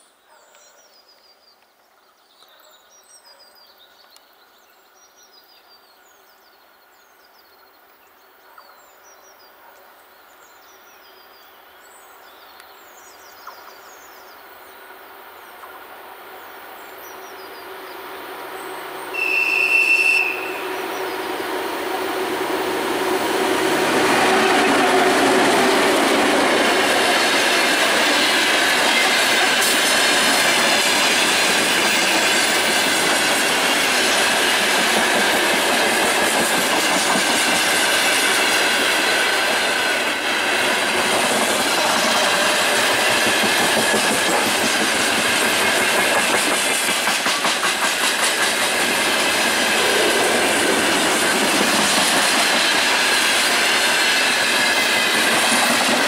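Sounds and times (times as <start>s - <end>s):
diesel locomotive engine drone: 16.2s - 56.0s
birdsong: 16.4s - 27.4s
train horn blast: 19.1s - 21.2s.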